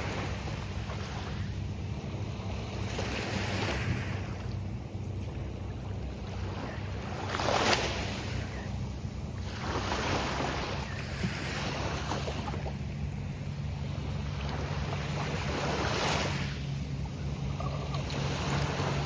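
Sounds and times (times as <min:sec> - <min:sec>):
surf breaking on a beach: 0:00.0 - 0:01.5
low steady rumble: 0:00.0 - 0:19.0.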